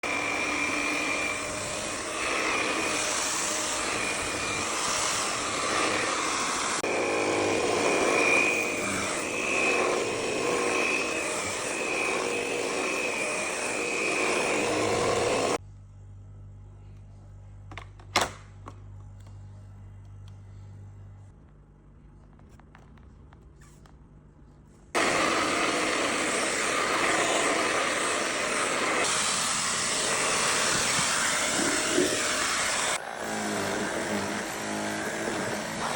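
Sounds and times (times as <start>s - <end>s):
vacuum cleaner running: 0.0s - 15.6s, 25.0s - 35.9s.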